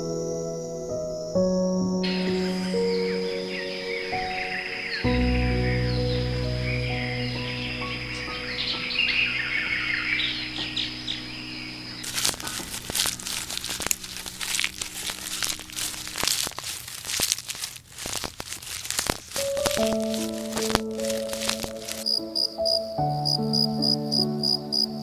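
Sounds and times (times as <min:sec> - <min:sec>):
soft music: 0:00.0 - 0:25.0
small birds chirping: 0:02.1 - 0:25.0
dense crackling clicks: 0:10.4 - 0:22.8.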